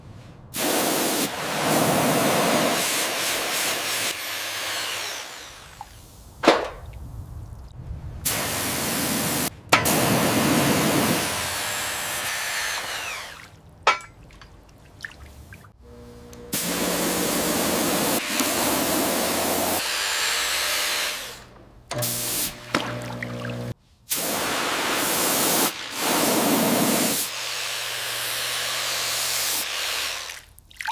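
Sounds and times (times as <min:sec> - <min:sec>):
small power tool running: 0:03.7 - 0:05.8, 0:10.1 - 0:13.4, 0:15.8 - 0:22.8, 0:25.9 - 0:30.3.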